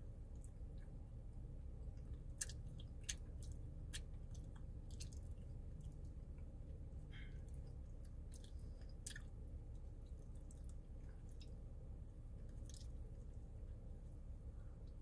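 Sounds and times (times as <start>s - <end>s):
steady low hum: 0.0s - 15.0s
wet squishy chewing: 1.8s - 13.6s.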